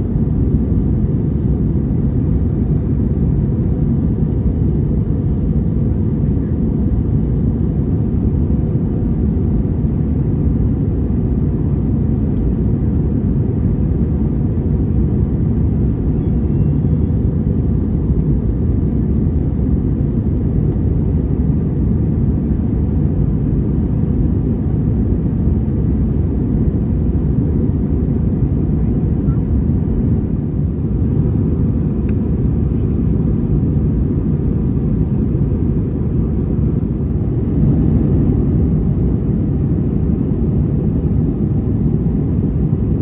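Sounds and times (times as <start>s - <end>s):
airliner cabin engine rumble: 0.0s - 43.0s.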